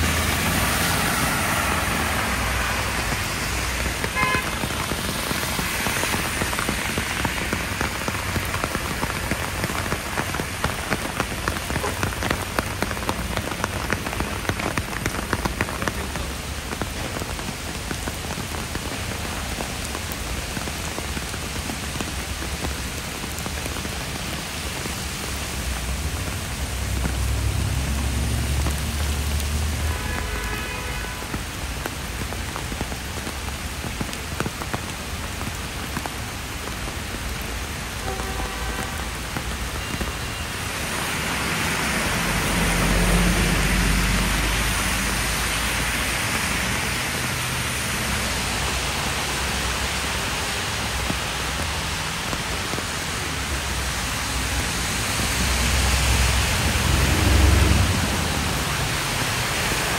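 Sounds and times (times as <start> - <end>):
heavy rain splashing: 0.0 - 59.9.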